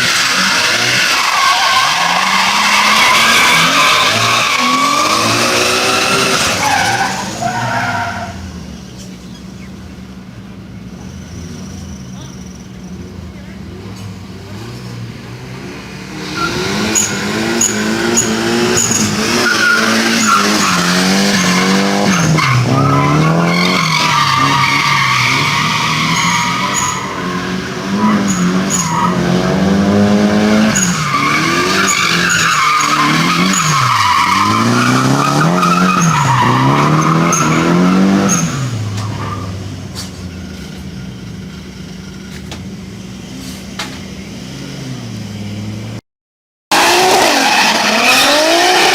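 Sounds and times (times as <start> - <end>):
tyres squealing: 0.0 - 9.7, 16.2 - 29.3, 30.5 - 41.0
car engine revving: 0.0 - 12.3, 13.0 - 46.0, 46.7 - 48.9.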